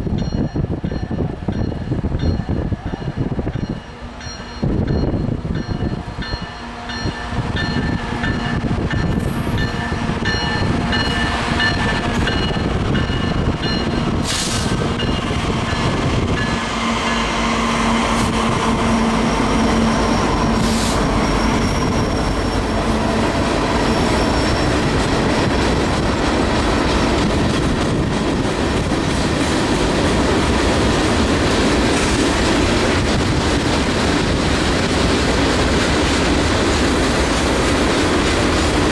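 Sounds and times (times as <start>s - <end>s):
train cars rumbling and clattering: 0.0s - 38.9s
locomotive engine: 3.7s - 38.9s.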